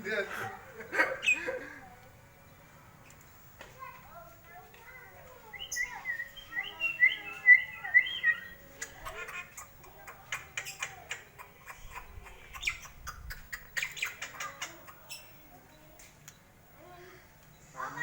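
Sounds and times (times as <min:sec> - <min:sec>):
bird whistling and squawking: 0:05.5 - 0:09.7, 0:10.3 - 0:15.4.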